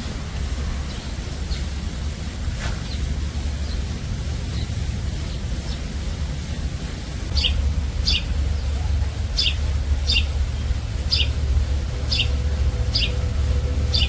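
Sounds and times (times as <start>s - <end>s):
steady low rumble: 0.0s - 14.0s
high falling bird chirp: 7.3s - 14.0s.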